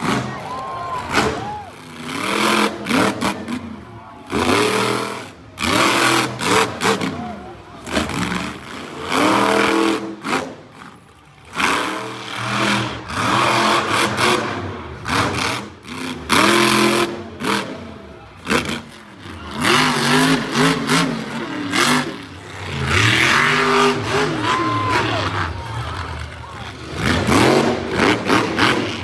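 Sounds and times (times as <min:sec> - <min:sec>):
monster truck engine revving: 0:00.0 - 0:29.0.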